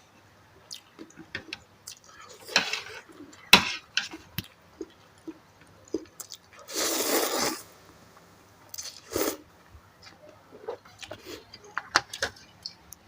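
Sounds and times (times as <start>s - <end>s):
chewing with mouth clicks: 4.4s - 6.6s.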